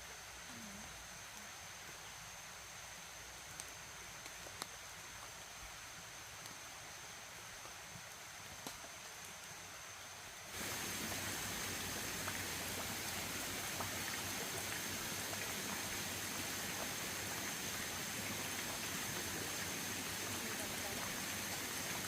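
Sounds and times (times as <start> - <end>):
faint scattered ticks: 0.0 - 11.0
quiet outdoor background: 0.0 - 22.0
steady water noise: 0.0 - 22.0.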